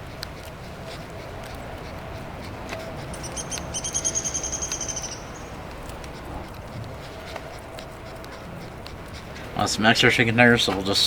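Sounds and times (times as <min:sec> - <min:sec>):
low outdoor background: 0:00.0 - 0:11.0
bird high rapid trill: 0:02.4 - 0:06.4.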